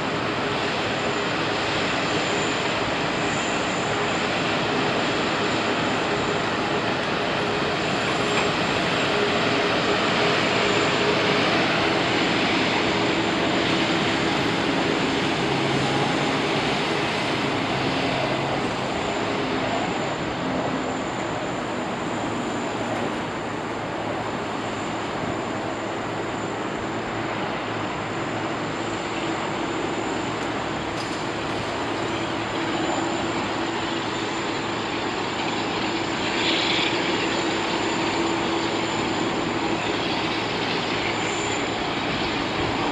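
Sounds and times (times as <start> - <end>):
jet engines whining: 0.0 - 42.9.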